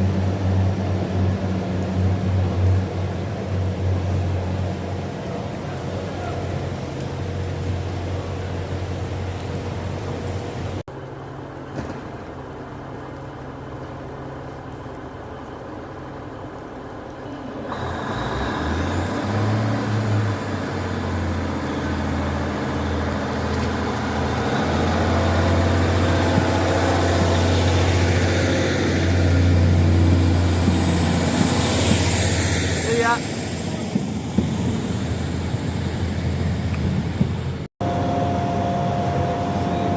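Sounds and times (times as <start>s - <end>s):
low train engine drone: 0.0s - 39.9s
faint high whine: 37.8s - 39.9s.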